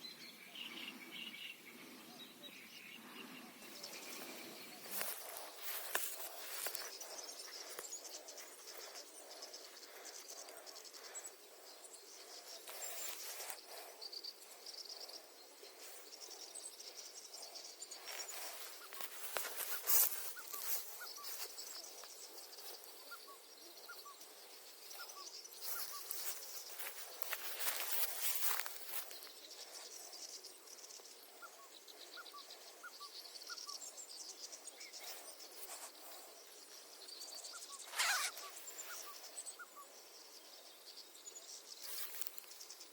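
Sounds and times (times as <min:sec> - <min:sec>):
birds chirping: 0:00.0 - 0:42.9
crackly rustles and clicks: 0:17.9 - 0:22.9, 0:25.6 - 0:29.9.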